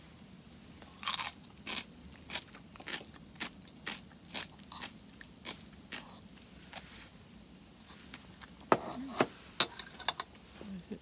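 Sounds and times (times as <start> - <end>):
person chewing soft rice: 0.8 - 7.0.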